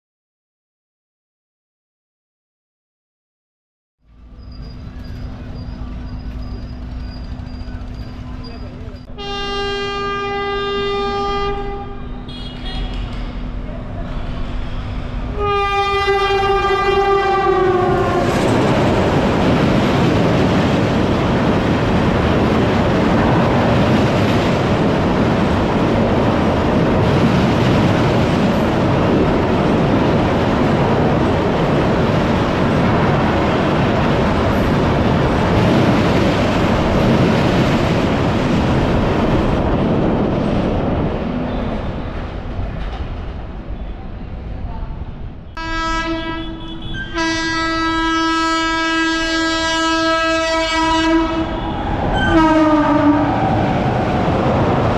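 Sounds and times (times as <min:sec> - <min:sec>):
train coaches rumbling past: 0:04.0 - 0:54.9
train horn blast: 0:09.1 - 0:13.1, 0:15.3 - 0:18.5, 0:45.6 - 0:53.3.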